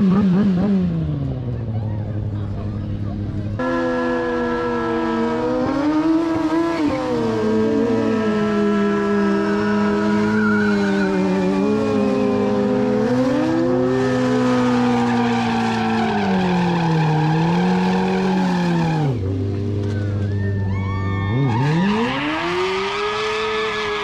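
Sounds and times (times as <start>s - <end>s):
motorcycle engine revving: 0.0s - 20.3s, 21.3s - 24.0s
tyre squealing on pavement: 7.9s - 24.0s.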